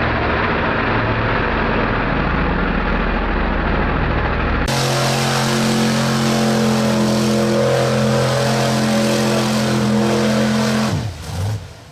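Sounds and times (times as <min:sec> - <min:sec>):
vehicle engine running hard: 0:00.0 - 0:11.9.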